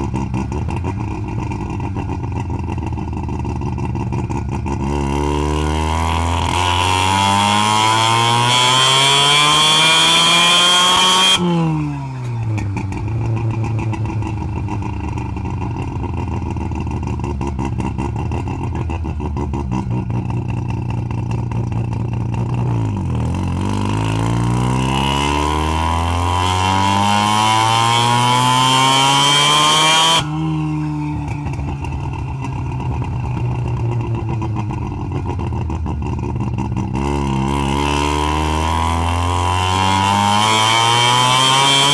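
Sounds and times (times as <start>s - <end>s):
rotary engine revving: 5.0s - 14.0s, 23.6s - 35.0s, 37.0s - 41.9s.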